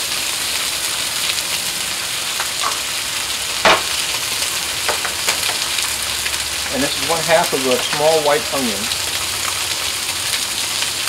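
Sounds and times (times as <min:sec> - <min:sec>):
meat sizzling on a griddle: 0:00.0 - 0:11.0
oil popping: 0:02.3 - 0:11.0.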